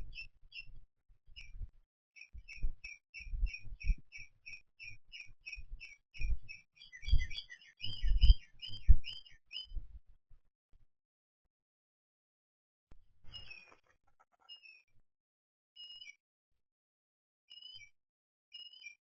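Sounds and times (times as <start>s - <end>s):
small bird chirping: 0.0s - 9.8s, 13.3s - 15.0s, 15.8s - 16.2s, 17.5s - 19.0s.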